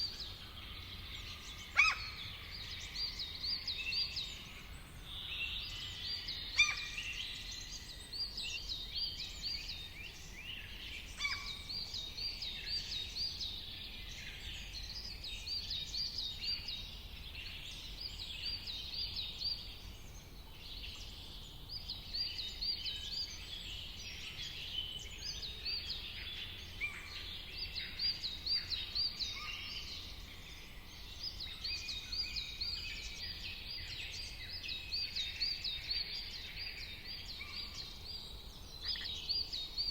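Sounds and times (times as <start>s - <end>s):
birds calling and chirping: 25.3s - 39.9s.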